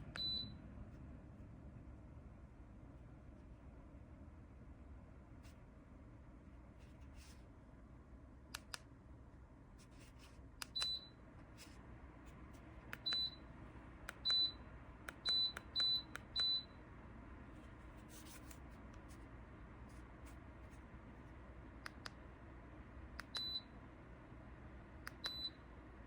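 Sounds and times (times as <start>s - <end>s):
heater control beeps: 0.0s - 0.6s, 10.6s - 11.2s, 12.9s - 13.5s, 14.1s - 16.8s, 23.2s - 23.8s, 25.1s - 25.7s
faint low hum: 0.0s - 26.0s.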